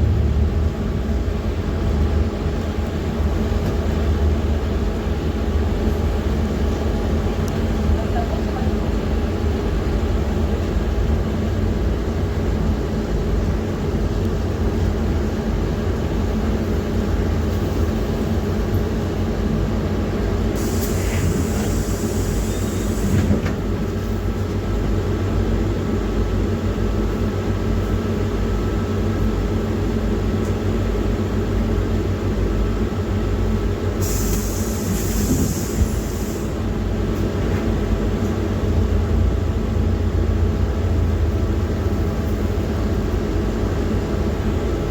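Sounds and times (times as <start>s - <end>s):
bus engine and road rumble: 0.0s - 44.9s
hiss: 20.6s - 23.4s, 34.0s - 36.6s.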